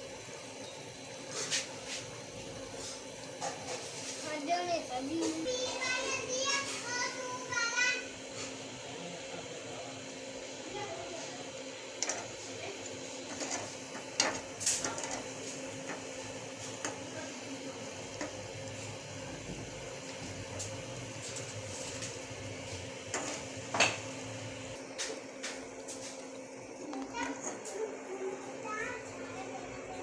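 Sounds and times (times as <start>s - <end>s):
fritters sizzling in oil: 0.0s - 30.0s.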